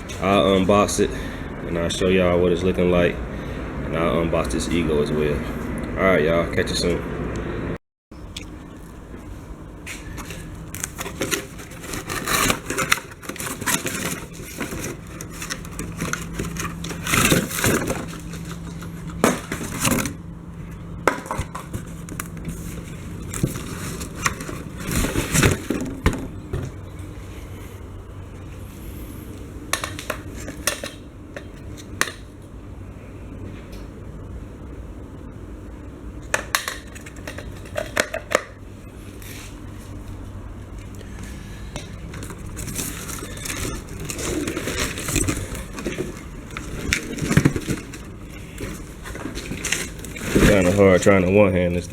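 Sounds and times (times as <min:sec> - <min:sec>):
packaging rustling and scraping: 0:09.2 - 0:26.4, 0:41.1 - 0:51.4.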